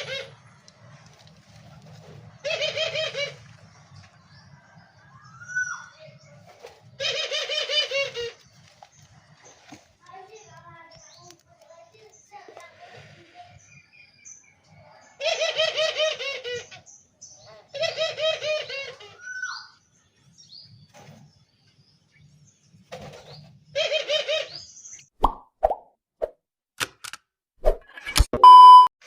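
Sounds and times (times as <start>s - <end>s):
doves cooing: 0.0s - 10.0s, 15.2s - 16.9s, 17.5s - 19.7s, 23.7s - 24.7s.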